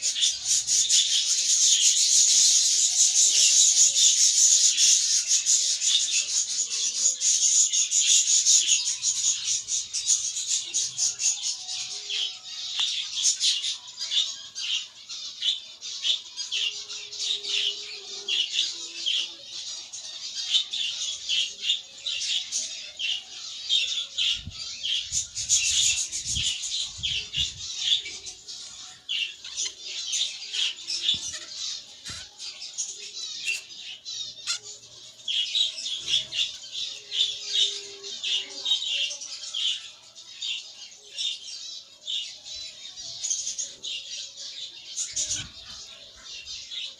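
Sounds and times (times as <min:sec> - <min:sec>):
budgerigars chattering and squawking: 0:00.0 - 0:11.5, 0:20.4 - 0:39.9, 0:40.5 - 0:46.9.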